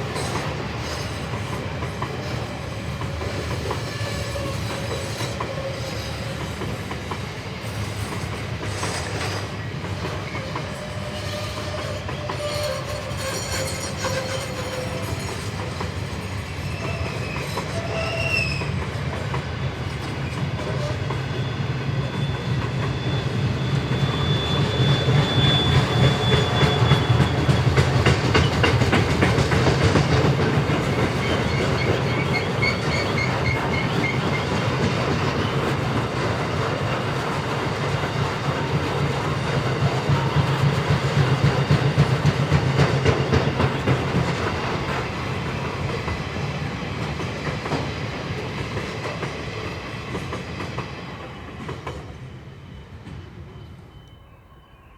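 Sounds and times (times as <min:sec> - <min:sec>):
train rumbling on rails: 0:00.0 - 0:54.9
wheels squealing: 0:10.2 - 0:15.8, 0:20.2 - 0:35.8.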